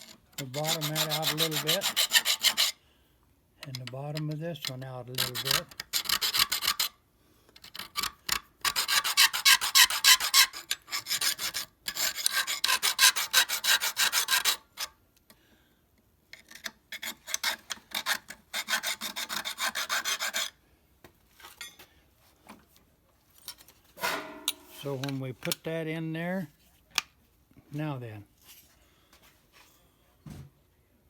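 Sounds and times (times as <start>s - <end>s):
hand file rasping metal: 0.0s - 2.8s, 5.1s - 6.9s, 7.6s - 14.9s, 16.9s - 20.6s.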